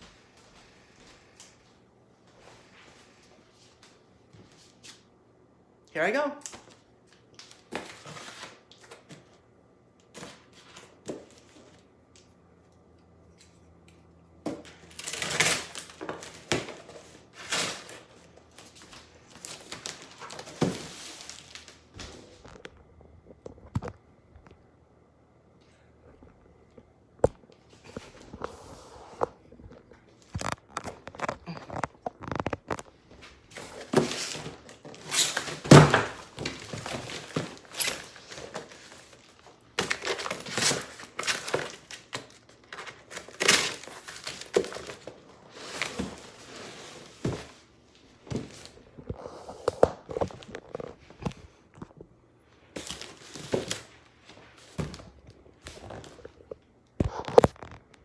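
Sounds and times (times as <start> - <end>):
packaging crinkling and tearing: 14.7 - 22.8, 29.7 - 47.3, 54.9 - 58.0.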